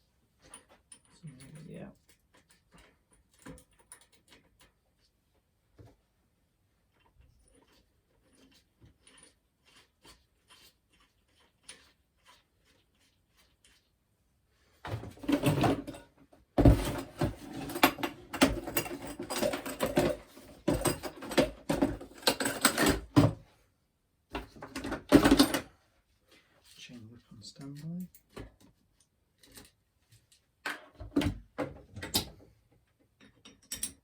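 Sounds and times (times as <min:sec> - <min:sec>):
metal tools clattering: 0:15.1 - 0:23.4, 0:24.6 - 0:25.7.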